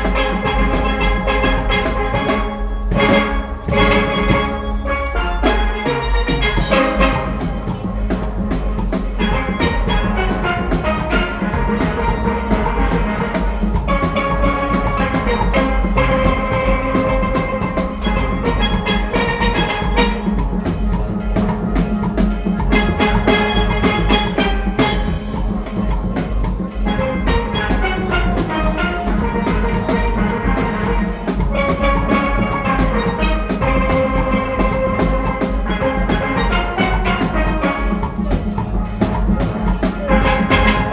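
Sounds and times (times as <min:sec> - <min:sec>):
drum kit and percussion rhythm: 0:00.0 - 0:40.9
steelpans playing melody: 0:00.0 - 0:40.9.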